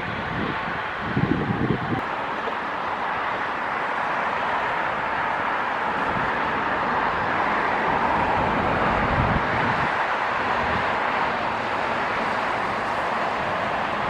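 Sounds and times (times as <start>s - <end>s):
wind on microphone: 0.0s - 2.0s, 5.8s - 14.0s
jet engines whining: 0.0s - 14.0s.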